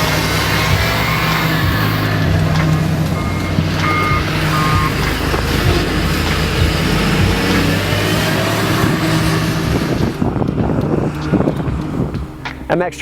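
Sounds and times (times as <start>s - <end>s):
reversing alarm beeping: 0.0s - 9.8s
heavy machine engine running: 0.0s - 12.9s.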